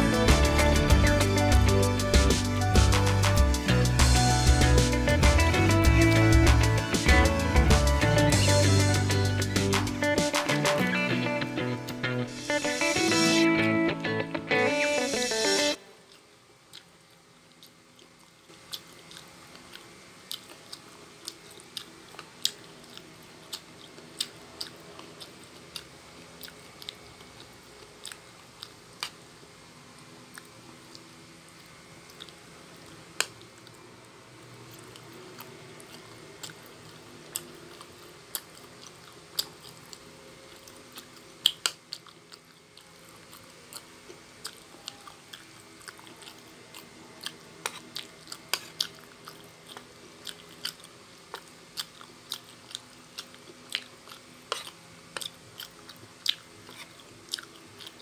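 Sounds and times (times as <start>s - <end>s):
person chewing crunchy food: 16.0s - 29.2s, 30.3s - 58.0s.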